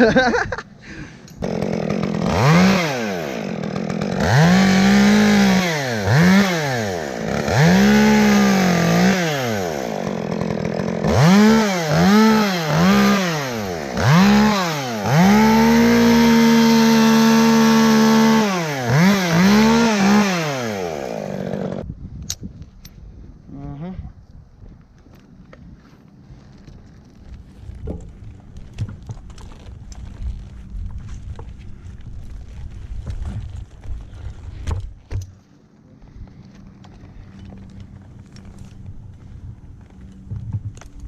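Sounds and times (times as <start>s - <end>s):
chainsaw engine revving: 1.4s - 21.9s.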